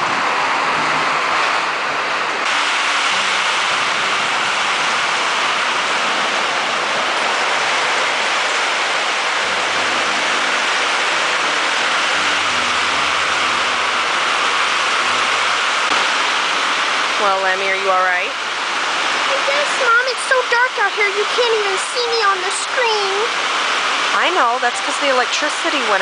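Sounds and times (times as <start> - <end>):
heavy rain on a roof: 0.0 - 26.0.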